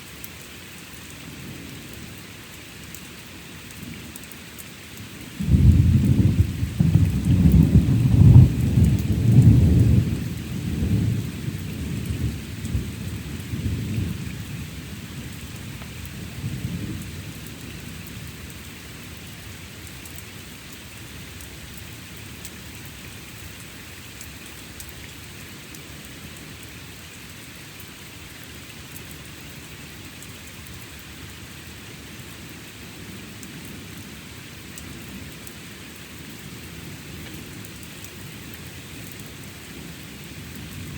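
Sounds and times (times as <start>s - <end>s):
steady rainfall: 0.0s - 40.9s
thunder rumbling: 5.4s - 17.4s.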